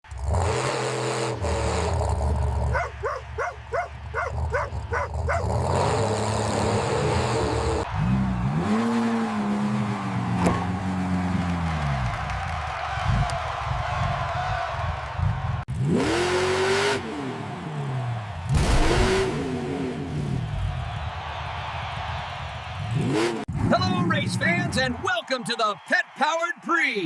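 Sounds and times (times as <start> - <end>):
engine revving: 0.0 - 12.3, 15.2 - 20.7, 22.8 - 24.0
car engine humming: 0.0 - 21.1.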